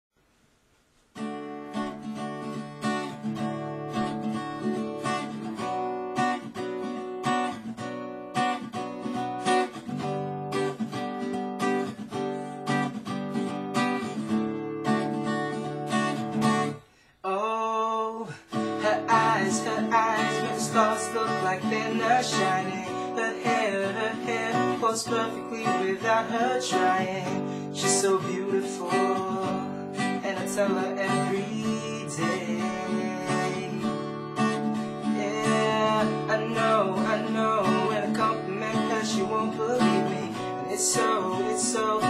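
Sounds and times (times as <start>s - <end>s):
acoustic guitar strumming: 1.1s - 17.1s, 18.2s - 42.0s.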